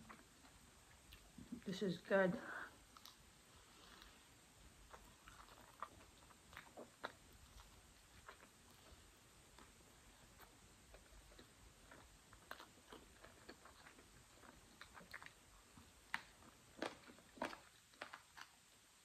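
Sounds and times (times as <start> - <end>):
wet chewing: 2.8 - 18.7.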